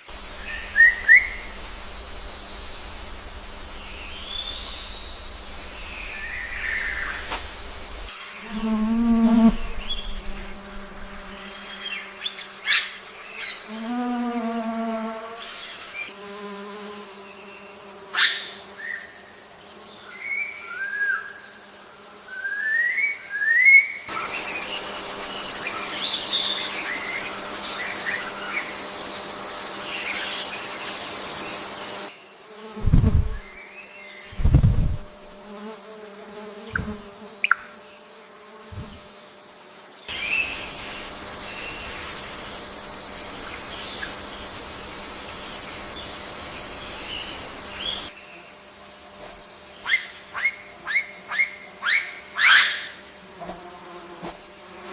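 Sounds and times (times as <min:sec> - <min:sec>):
birds chirping: 0:00.0 - 0:13.6, 0:36.6 - 0:38.0
insects buzzing: 0:00.0 - 0:54.9.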